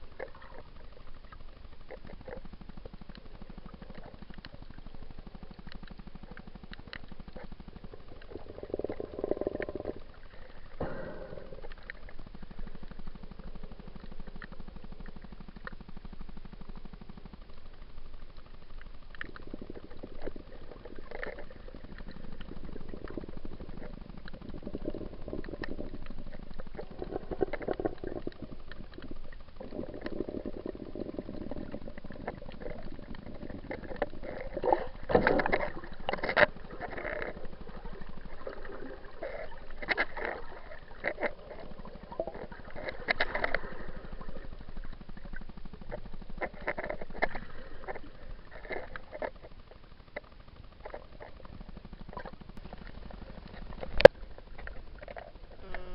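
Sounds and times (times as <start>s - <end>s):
muffled water sloshing and gurgling: 0.0s - 55.9s
water splashing: 17.8s - 55.7s.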